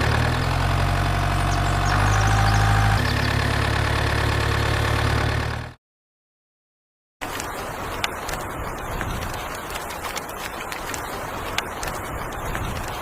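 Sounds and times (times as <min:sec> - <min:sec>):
engine-like drone: 0:00.0 - 0:05.8.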